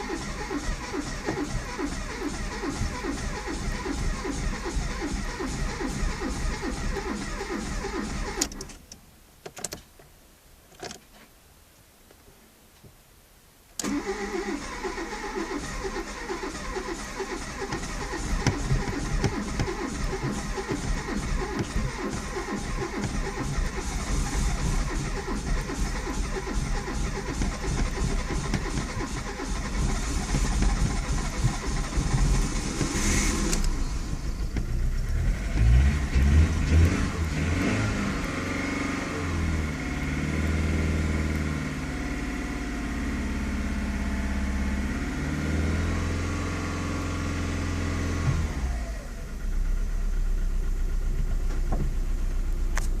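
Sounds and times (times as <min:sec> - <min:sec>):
car engine running and revving: 0:00.0 - 0:08.5, 0:16.0 - 0:53.0
car engine cranking on starter: 0:00.0 - 0:08.8, 0:13.8 - 0:53.0.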